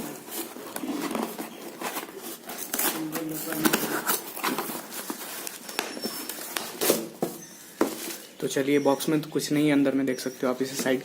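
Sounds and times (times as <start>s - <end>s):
cardboard box rustling and scraping: 0.0s - 8.4s.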